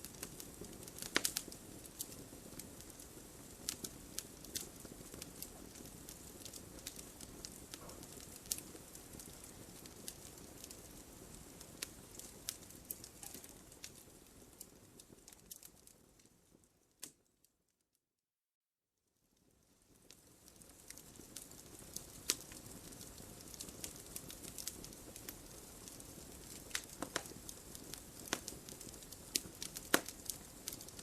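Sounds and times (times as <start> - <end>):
fire hissing: 0.0 - 14.8
wood crackling and popping: 0.0 - 17.3, 19.9 - 31.0.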